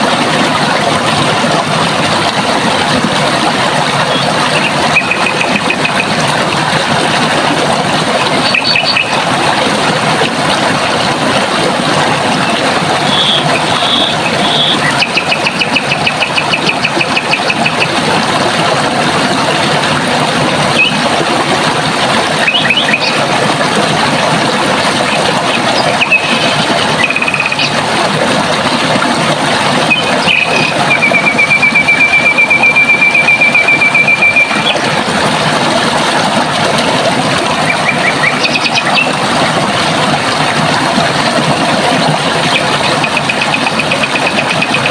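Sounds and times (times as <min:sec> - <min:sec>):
running water: 0:00.0 - 0:44.9.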